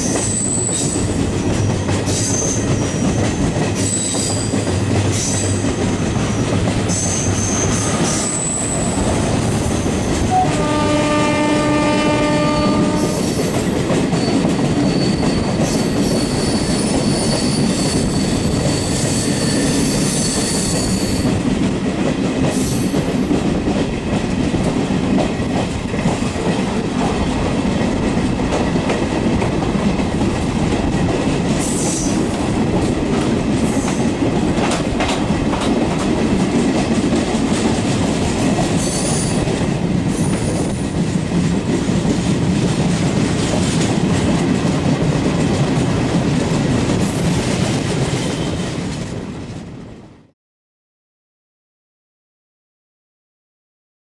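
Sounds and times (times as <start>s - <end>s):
train wheels rumbling and clattering: 0.0s - 50.3s
train passing alongside: 0.0s - 50.4s
high-pitched wheel squeals: 0.2s - 0.9s, 6.9s - 9.6s, 14.2s - 21.3s.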